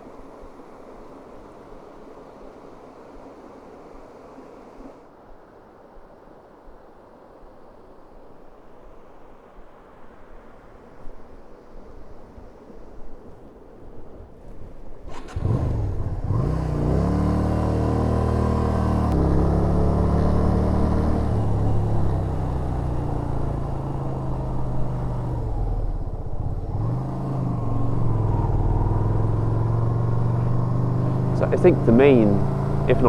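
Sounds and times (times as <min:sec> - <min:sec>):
low wind noise: 0:12.2 - 0:33.0
motorcycle engine revving: 0:15.1 - 0:33.0.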